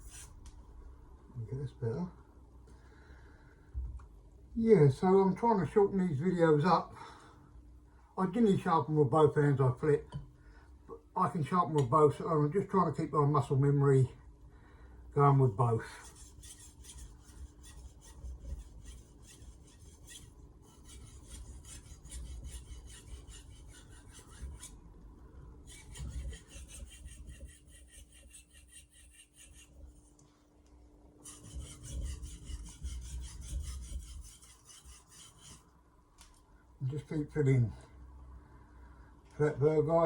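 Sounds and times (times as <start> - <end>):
knife scraping on whetstone: 0.0 - 0.4, 16.0 - 24.8, 25.6 - 30.2, 31.2 - 35.7.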